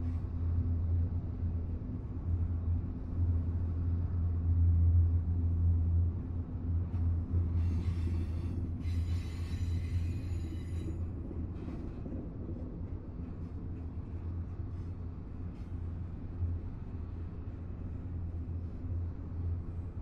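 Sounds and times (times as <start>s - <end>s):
freight train rumbling past: 0.0s - 20.0s
steel wheels squealing on rails: 7.3s - 12.0s.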